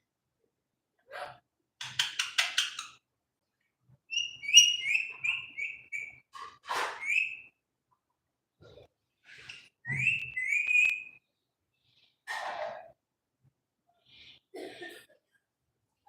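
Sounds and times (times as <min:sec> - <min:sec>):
parrot whistling: 0:04.1 - 0:06.2, 0:09.9 - 0:11.2.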